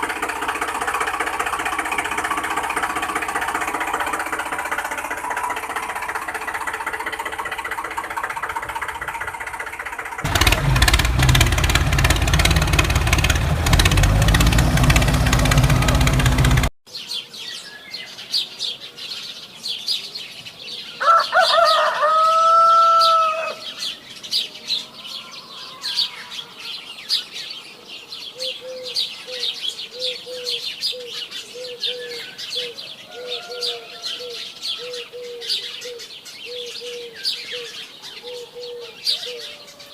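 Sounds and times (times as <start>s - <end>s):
small motor running: 0.0s - 16.7s
low repeated bird call: 0.0s - 18.8s, 20.9s - 39.9s
small birds chirping: 10.3s - 39.9s
loud drawn-out bird call: 21.0s - 24.0s, 28.4s - 39.9s.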